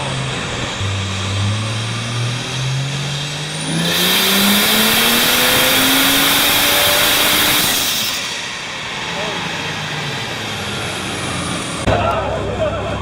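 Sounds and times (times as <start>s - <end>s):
loud rushing noise: 0.0s - 12.6s
car engine accelerating: 0.0s - 13.0s.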